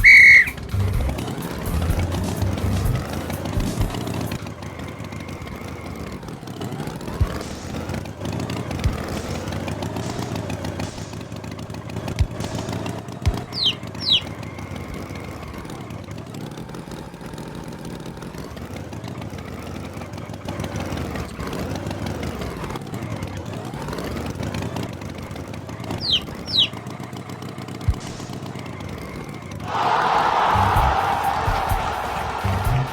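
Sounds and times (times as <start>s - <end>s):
short high falling chirps: 0.0s - 0.6s, 13.5s - 14.3s, 26.0s - 26.7s
tractor engine running: 0.0s - 32.9s.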